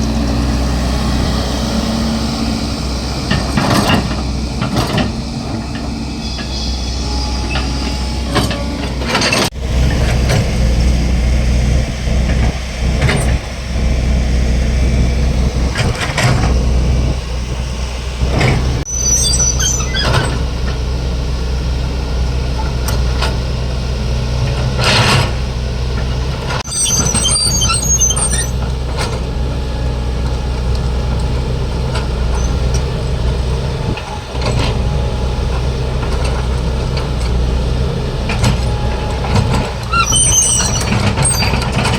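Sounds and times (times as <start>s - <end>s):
diesel excavator running: 0.0s - 41.9s
machine clanks and knocks: 3.3s - 6.5s
high squeaks: 6.2s - 9.5s, 18.4s - 20.4s, 26.6s - 28.8s, 38.7s - 41.9s.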